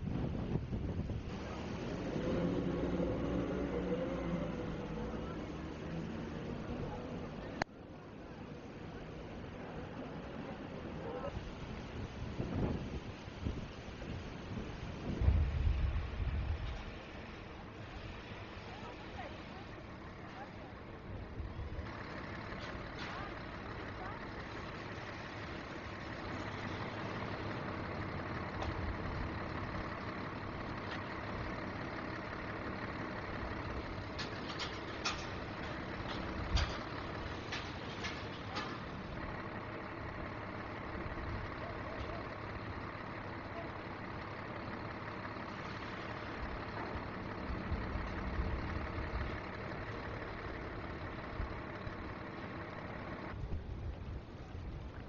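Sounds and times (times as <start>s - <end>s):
wind buffeting microphone: 0.0s - 1.6s, 11.6s - 17.0s.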